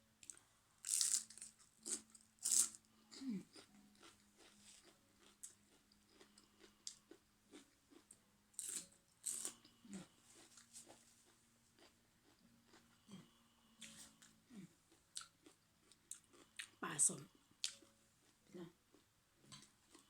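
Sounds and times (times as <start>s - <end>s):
crunching raw vegetables: 0.2s - 3.3s.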